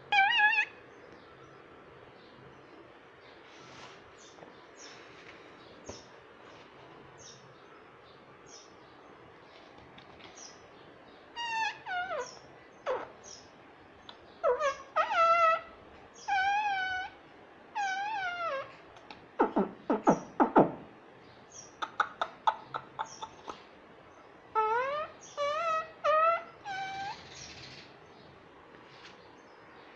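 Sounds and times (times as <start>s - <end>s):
parrot whistling and mimicking: 11.4s - 13.1s, 14.4s - 17.2s, 17.8s - 18.7s, 24.6s - 27.4s.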